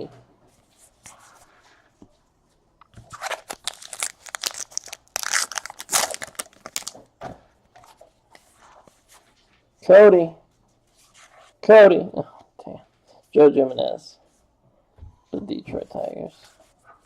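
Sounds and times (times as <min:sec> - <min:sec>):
wrapper tearing and crinkling: 0:03.1 - 0:07.0.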